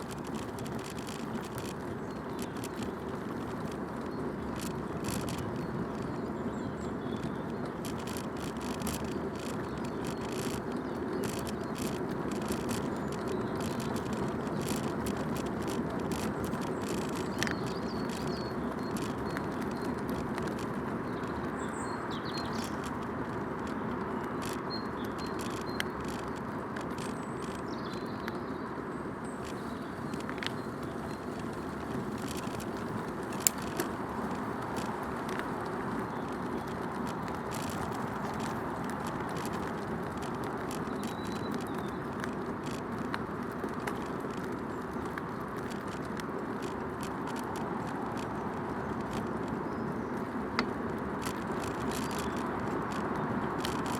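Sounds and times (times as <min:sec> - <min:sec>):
bicycle clicks and rattles: 0:00.0 - 0:53.9
bicycle tyres rolling off-road: 0:00.0 - 0:53.9.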